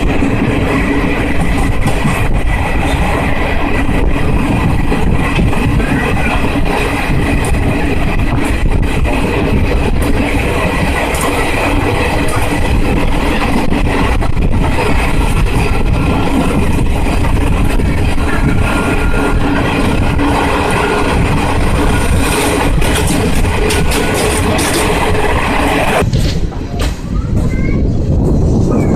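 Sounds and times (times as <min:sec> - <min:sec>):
train wheels rumbling on track: 0:00.0 - 0:28.9
rattling clatter: 0:04.4 - 0:26.6.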